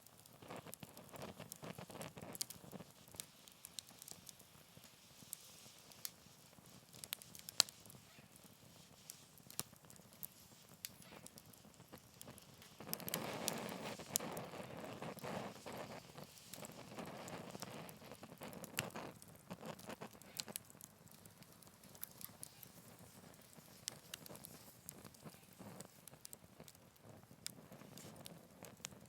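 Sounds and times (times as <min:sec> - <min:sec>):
campfire crackling: 0:00.0 - 0:29.0
fire popping: 0:00.0 - 0:29.0.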